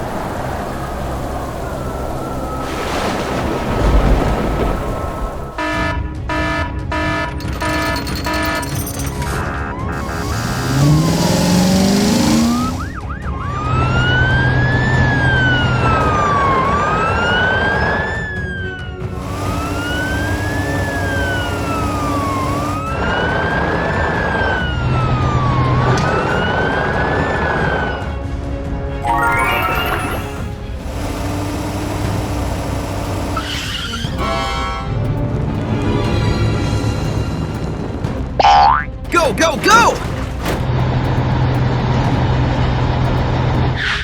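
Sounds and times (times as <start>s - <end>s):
police siren wailing: 9.6s - 27.8s
rising sound effect: 9.9s - 13.1s, 29.0s - 30.6s.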